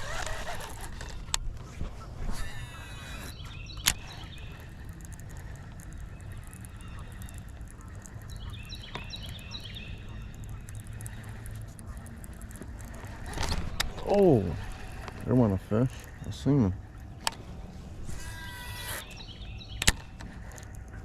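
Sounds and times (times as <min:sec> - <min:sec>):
steady low rumble: 0:03.2 - 0:21.0
sharp click: 0:18.8 - 0:20.7.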